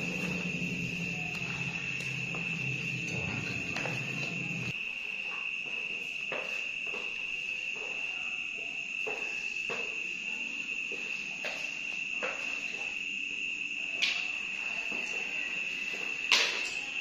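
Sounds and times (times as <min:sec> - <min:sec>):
cricket trilling: 0:00.0 - 0:17.0.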